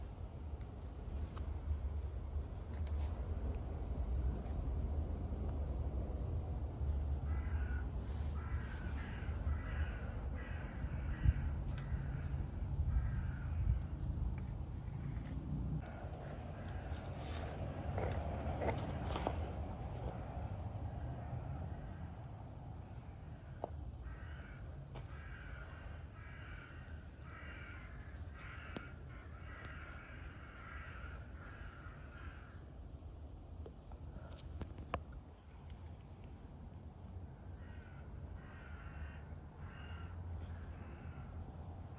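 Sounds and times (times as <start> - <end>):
steady low rumble: 0.0 - 24.0
crow cawing: 7.3 - 12.2, 12.9 - 13.9, 24.0 - 32.6, 37.5 - 41.3.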